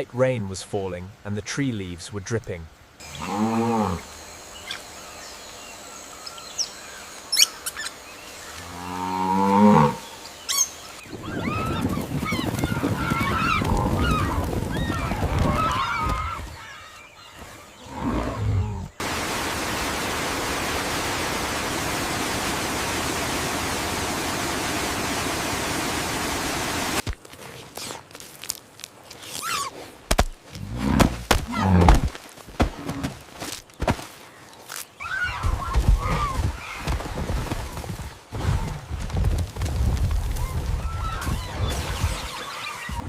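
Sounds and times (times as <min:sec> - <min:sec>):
rain hiss: 0:00.0 - 0:11.1, 0:18.8 - 0:27.1
high chirping calls: 0:04.5 - 0:08.5, 0:10.2 - 0:14.2.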